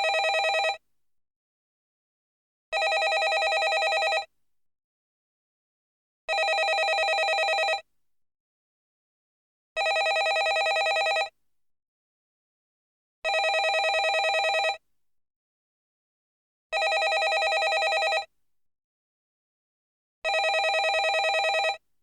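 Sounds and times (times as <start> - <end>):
telephone ringing with warble: 0.0 - 0.8, 2.8 - 4.3, 6.3 - 7.8, 9.8 - 11.3, 13.3 - 14.8, 16.8 - 18.3, 20.3 - 21.8.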